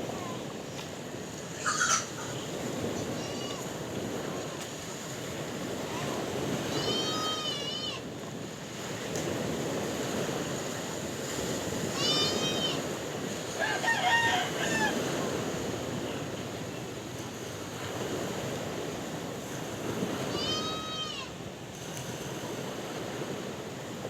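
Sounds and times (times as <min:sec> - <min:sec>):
sea waves washing: 0:00.0 - 0:24.0
rooster crowing: 0:13.5 - 0:15.3.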